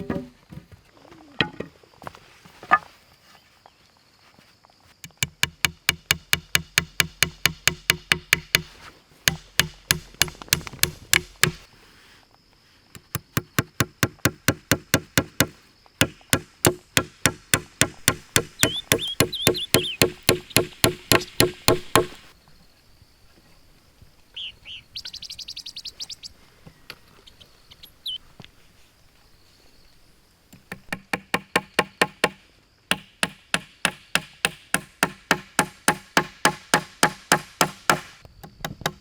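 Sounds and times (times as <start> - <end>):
rapid knocks: 16.0 - 22.2.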